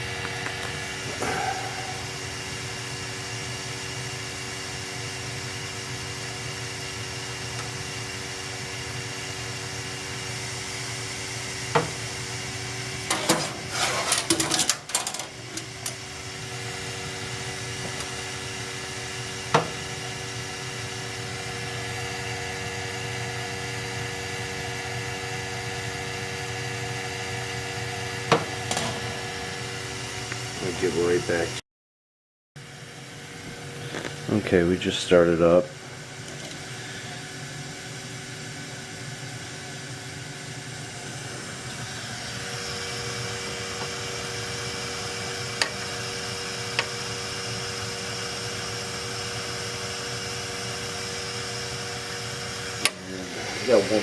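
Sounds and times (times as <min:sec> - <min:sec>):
boiler humming: 0:00.0 - 0:31.6, 0:32.6 - 0:54.0
clattering handling noise: 0:13.1 - 0:16.0.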